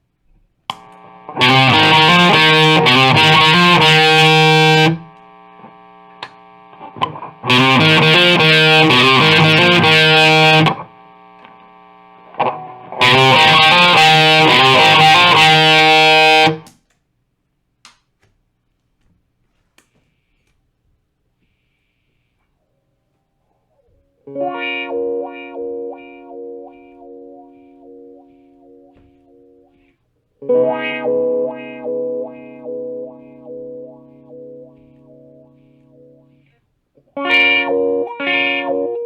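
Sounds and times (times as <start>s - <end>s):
low amp hum: 0.6s - 16.7s
distorted electric guitar: 0.7s - 16.8s, 24.2s - 39.0s.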